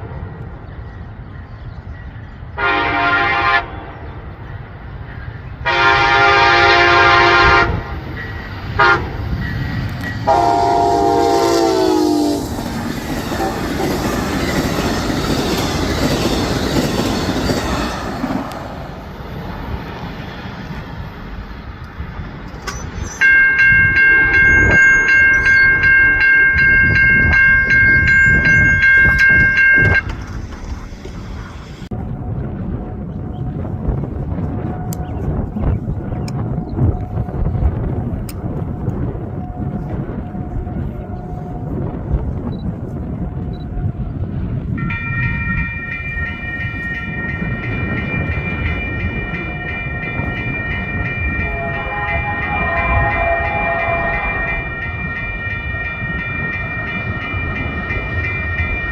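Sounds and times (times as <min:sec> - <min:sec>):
regular rail clicks: 0:00.0 - 0:32.0, 0:33.9 - 0:58.9
passing train rumble: 0:00.0 - 0:58.9
locomotive horn: 0:02.6 - 0:03.8, 0:05.6 - 0:08.0, 0:08.8 - 0:09.2, 0:10.2 - 0:12.7, 0:13.3 - 0:14.2, 0:51.4 - 0:54.8
high-pitched tones: 0:22.8 - 0:31.1, 0:44.8 - 0:58.9
low wavering tone: 0:44.8 - 0:58.9.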